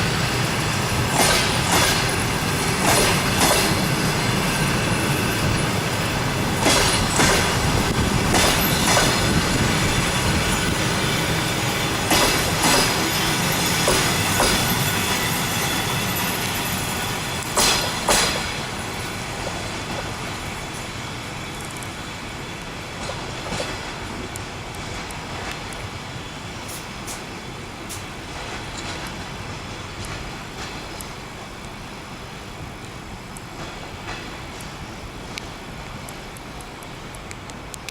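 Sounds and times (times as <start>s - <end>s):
train rumbling past: 0.0s - 37.9s
wheels clicking over rail joints: 6.4s - 15.4s.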